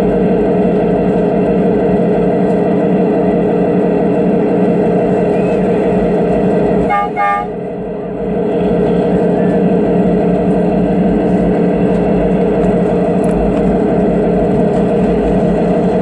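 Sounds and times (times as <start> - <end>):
diesel locomotive drone: 0.0 - 16.0
train horn toots: 6.8 - 7.7.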